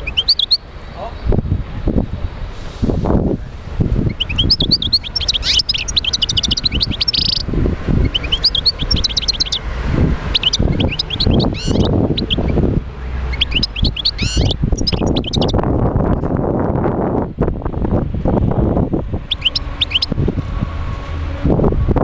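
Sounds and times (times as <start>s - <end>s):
bird twittering and trilling: 0.0s - 1.4s, 4.0s - 16.2s, 19.2s - 20.2s.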